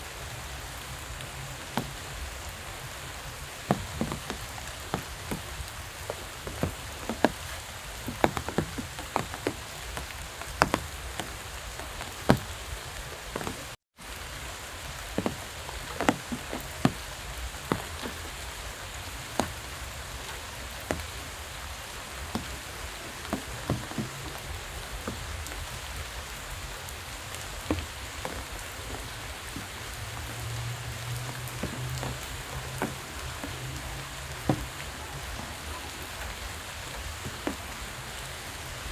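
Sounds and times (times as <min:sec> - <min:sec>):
raindrops tapping close by: 0:00.0 - 0:38.9
steady rain falling: 0:00.0 - 0:38.9.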